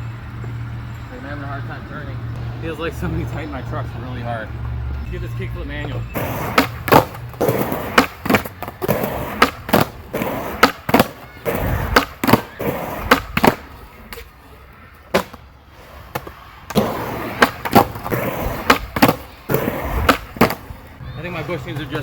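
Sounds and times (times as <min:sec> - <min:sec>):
skateboard wheels rolling on pavement: 0:00.0 - 0:22.0
skateboard clacks and knocks: 0:05.8 - 0:14.3, 0:14.9 - 0:15.4, 0:16.1 - 0:20.9.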